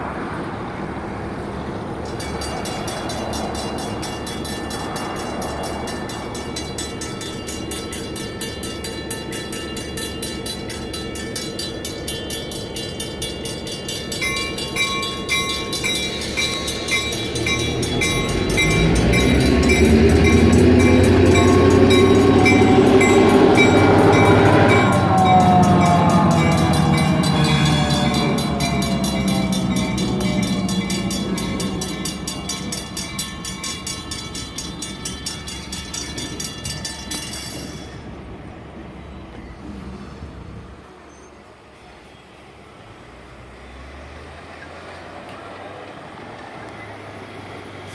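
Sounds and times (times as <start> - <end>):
locomotive diesel engine: 0.0 - 47.9
railroad crossing bells ringing: 0.6 - 39.6
nearer louder bell: 2.1 - 38.3.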